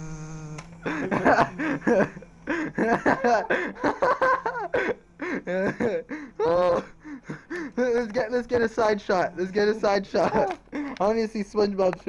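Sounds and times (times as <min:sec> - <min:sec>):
steady held hum: 0:00.0 - 0:11.9
men snickering and laughing: 0:00.8 - 0:08.7, 0:09.4 - 0:11.0.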